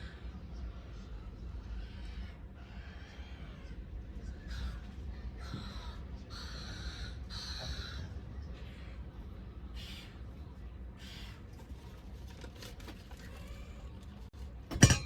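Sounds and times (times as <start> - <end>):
seagulls squawking: 1.6 - 9.2.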